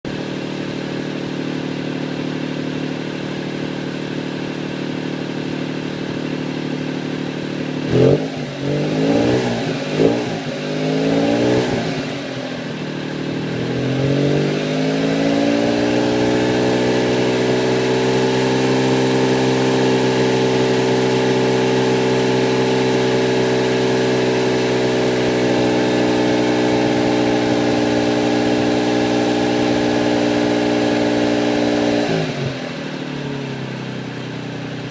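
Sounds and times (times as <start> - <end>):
small engine revving: 7.8 - 12.6, 13.4 - 33.0.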